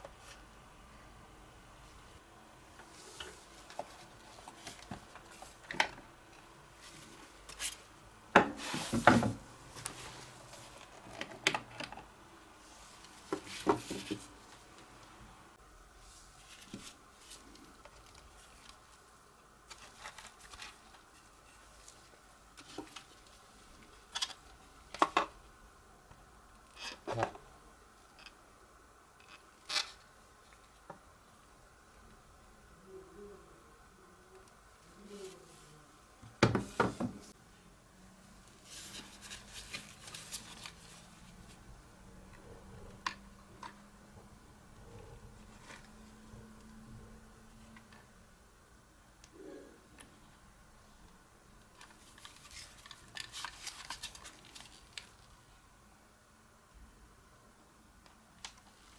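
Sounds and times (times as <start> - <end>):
plastic parts clicking and rattling: 51.7 - 55.3.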